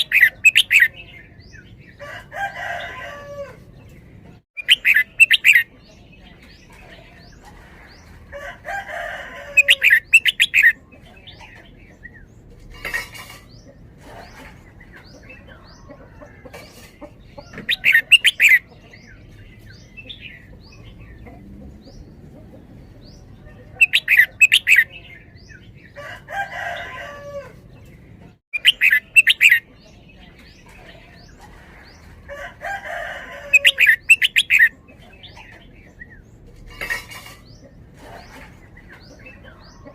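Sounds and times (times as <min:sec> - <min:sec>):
bulbul singing: 0:00.0 - 0:02.0, 0:04.6 - 0:07.4, 0:09.5 - 0:12.3, 0:14.7 - 0:26.0, 0:28.6 - 0:32.0, 0:33.3 - 0:39.9.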